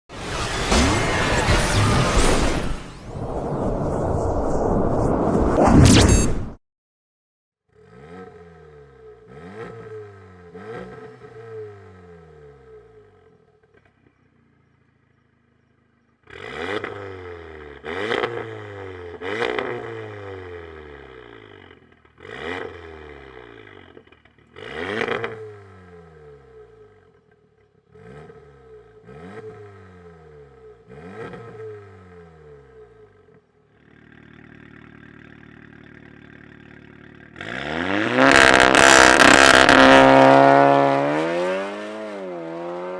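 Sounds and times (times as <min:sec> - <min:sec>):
car engine revving and idling: 0:07.8 - 0:13.5, 0:14.9 - 0:42.9.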